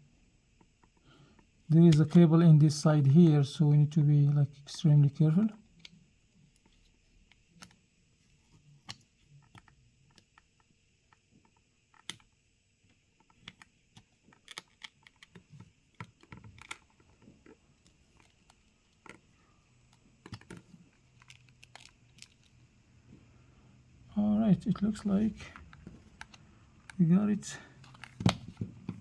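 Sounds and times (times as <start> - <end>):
plastic pry tool clicking: 11.9 - 12.3, 19.9 - 22.4, 27.8 - 29.0.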